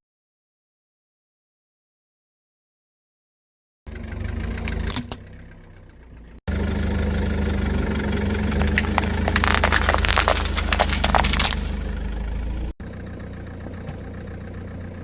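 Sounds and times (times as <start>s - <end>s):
car engine idling: 3.9s - 15.0s
objects crushed under tyres: 8.5s - 11.8s.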